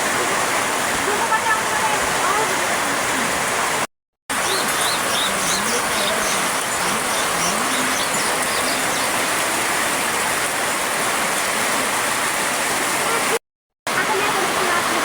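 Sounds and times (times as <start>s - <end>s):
heavily flowing water rushing: 0.0s - 15.0s
small birds chirping: 4.3s - 9.5s.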